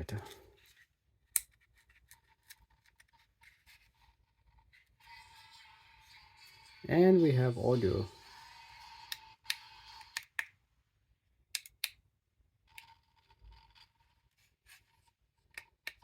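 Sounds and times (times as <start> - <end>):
sharp plastic clicks: 11.5 - 12.0.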